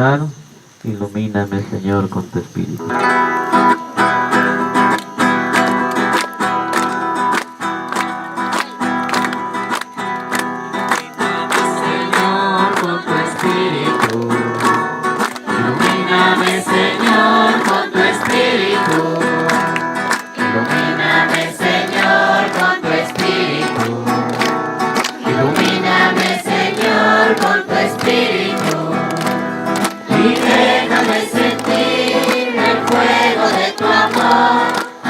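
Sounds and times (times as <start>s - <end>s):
strummed acoustic guitar: 2.8s - 35.0s
group singing a hymn: 11.0s - 35.0s.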